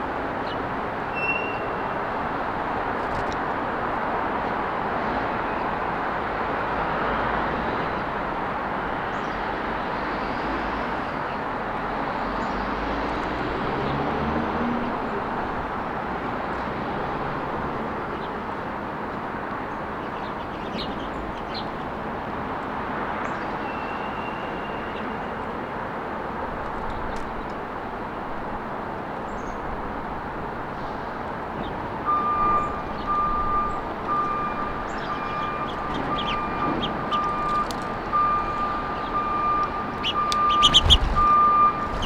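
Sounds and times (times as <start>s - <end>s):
road traffic: 0.0s - 42.0s
short bird chirps: 40.0s - 42.0s.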